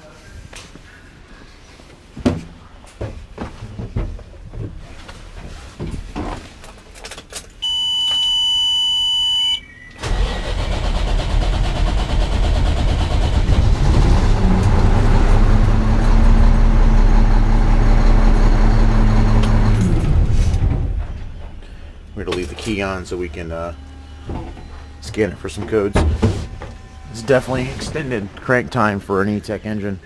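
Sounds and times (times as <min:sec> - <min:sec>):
high warning tone: 0:07.6 - 0:10.0
diesel engine cranking and starting: 0:09.4 - 0:28.6.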